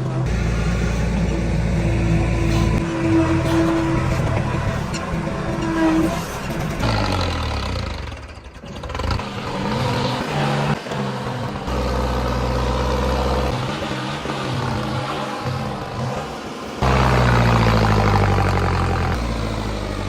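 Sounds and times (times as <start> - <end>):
tractor diesel engine revving: 0.0 - 20.0.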